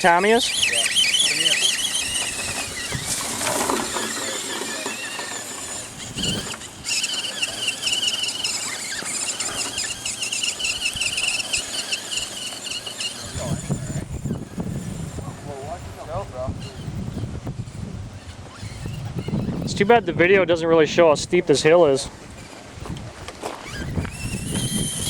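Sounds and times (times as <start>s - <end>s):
electric motor and gearbox whining: 0.0s - 25.0s.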